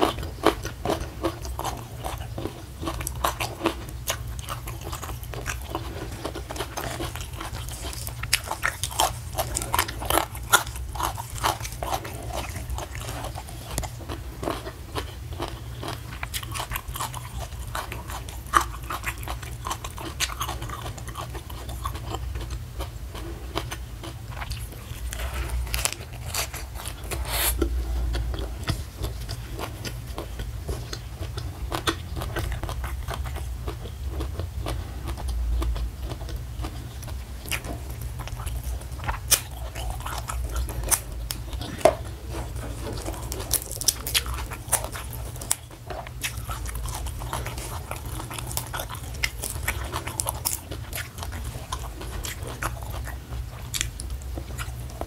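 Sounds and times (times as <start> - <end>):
crunching and chewing greens: 0.0 - 55.0
wet mouth noises: 25.0 - 30.5.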